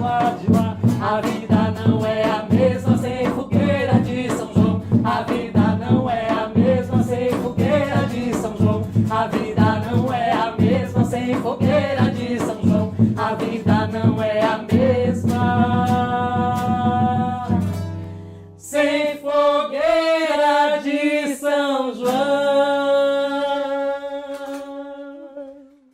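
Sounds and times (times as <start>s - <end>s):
person singing: 0.0s - 17.8s, 18.6s - 25.9s
instrumental accompaniment: 0.0s - 18.6s
percussion: 0.0s - 19.0s, 22.0s - 22.7s, 24.2s - 24.9s.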